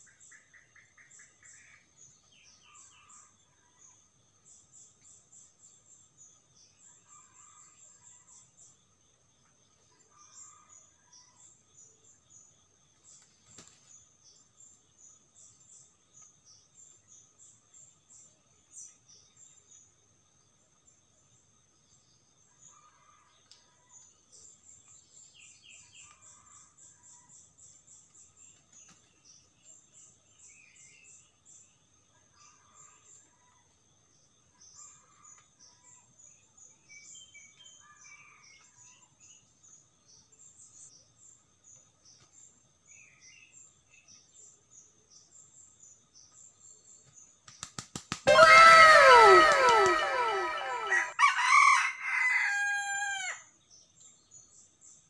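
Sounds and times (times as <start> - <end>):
short bird calls: 48.3 - 51.1.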